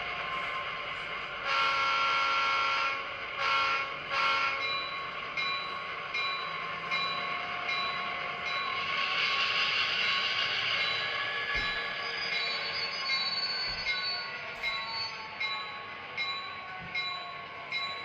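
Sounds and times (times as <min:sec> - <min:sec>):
running locomotive sound: 0:00.0 - 0:18.0
model train chime horn: 0:01.4 - 0:05.0
locomotive bell ringing: 0:03.8 - 0:18.0.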